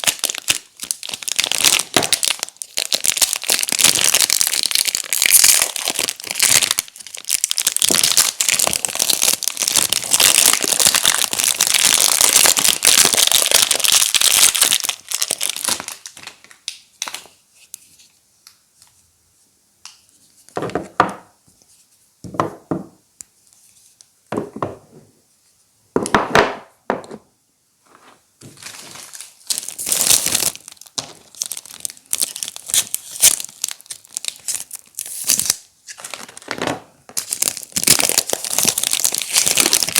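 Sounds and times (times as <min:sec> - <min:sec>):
packaging crinkling and tearing: 0:00.0 - 0:17.4, 0:28.4 - 0:39.9.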